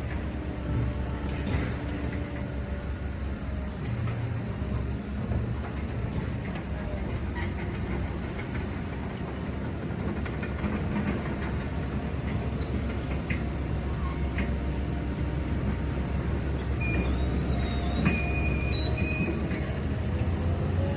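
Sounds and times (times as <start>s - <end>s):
road noise: 0.0s - 20.9s
truck engine rumble: 0.0s - 20.9s.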